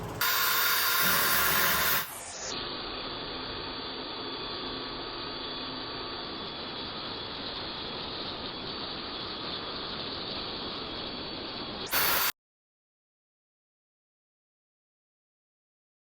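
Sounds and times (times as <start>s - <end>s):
power tool grinding metal: 0.0s - 2.3s
faint motor whine: 0.0s - 12.3s.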